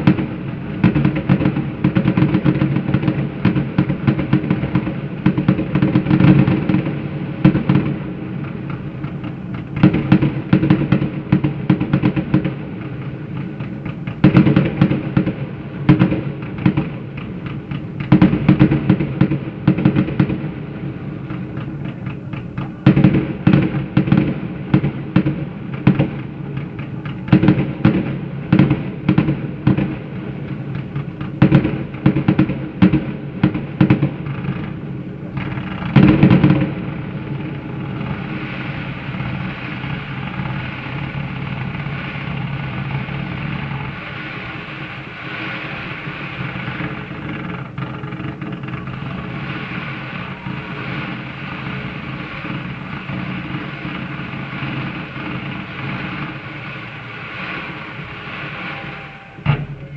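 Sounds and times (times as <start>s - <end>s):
fireworks booms and bangs: 0.0s - 59.9s
steady drone: 48.5s - 59.9s.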